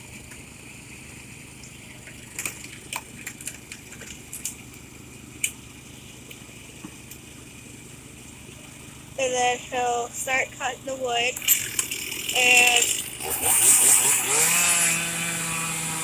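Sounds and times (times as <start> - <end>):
excavator engine idling: 0.0 - 16.0
sharp clicks and knocks: 1.6 - 4.8.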